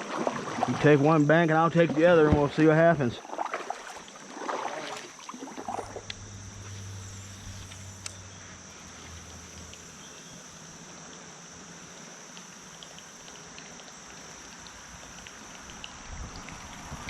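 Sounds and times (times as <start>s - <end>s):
paddle splashes and drips: 0.0s - 17.0s
high-pitched insect drone: 0.1s - 17.0s
low hum: 5.2s - 17.0s.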